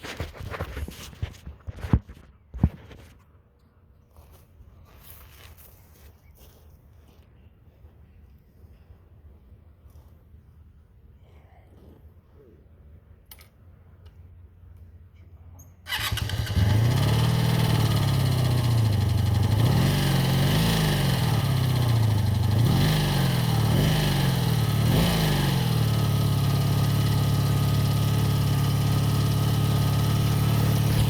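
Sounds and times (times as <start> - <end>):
motorcycle engine starting and idling: 15.7 - 31.0.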